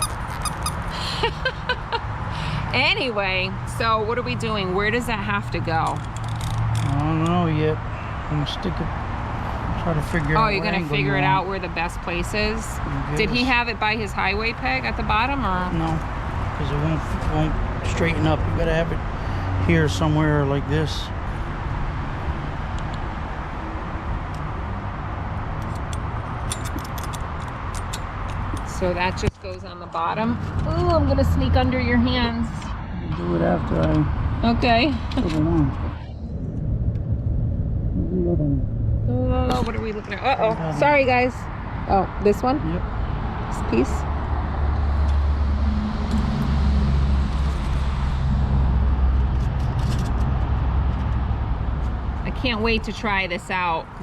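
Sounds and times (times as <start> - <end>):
low background rumble: 0.0 - 21.6, 28.2 - 44.8
metal parts clicking and tapping: 25.6 - 28.7.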